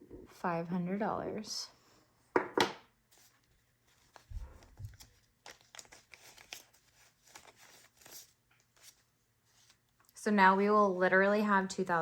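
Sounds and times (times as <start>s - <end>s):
paper rustling: 3.1s - 10.1s.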